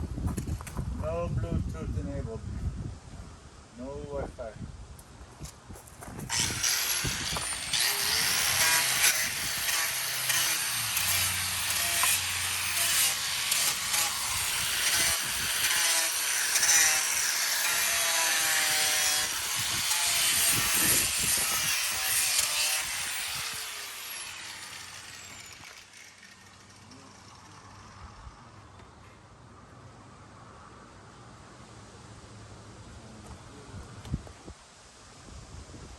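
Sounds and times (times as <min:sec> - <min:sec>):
hand tool rasping wood: 0:06.2 - 0:26.1.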